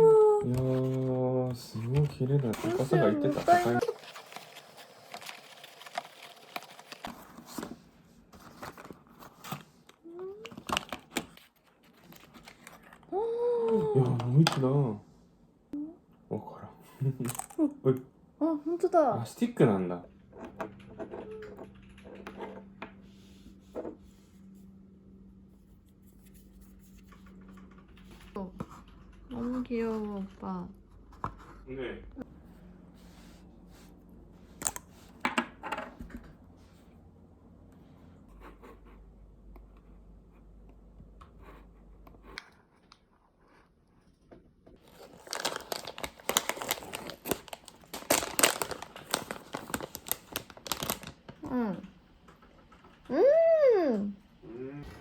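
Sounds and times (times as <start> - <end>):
wrapping crinkling and tearing: 0.6 - 7.6, 44.8 - 51.4
small objects clicking and rustling: 1.8 - 7.7, 44.8 - 51.4.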